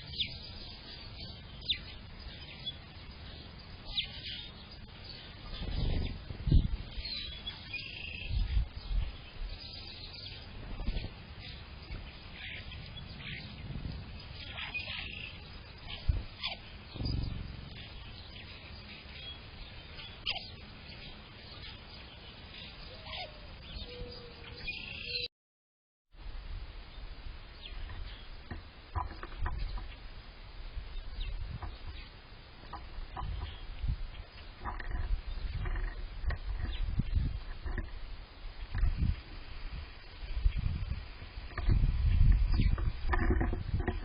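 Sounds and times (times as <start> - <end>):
songbirds chirping faintly: 0.0 - 25.3, 26.2 - 44.0
sharp falling bird calls: 11.4 - 21.9
low rumble: 12.3 - 20.0
low thump: 16.9 - 18.1.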